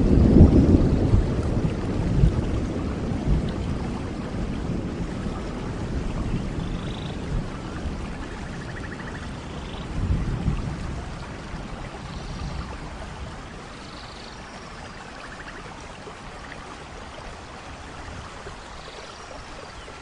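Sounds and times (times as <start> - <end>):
low thunder rumbling: 0.0 - 13.8
steady rain falling: 0.0 - 20.0.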